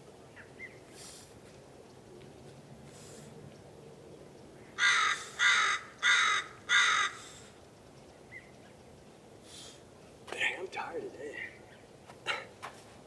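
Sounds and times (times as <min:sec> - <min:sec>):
bird calling: 0:00.3 - 0:01.2.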